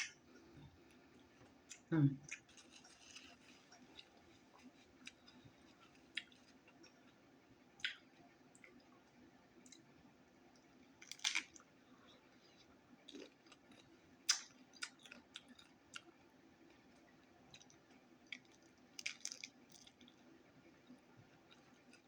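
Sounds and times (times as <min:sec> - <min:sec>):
chewing and lip smacking: 0:06.0 - 0:07.0.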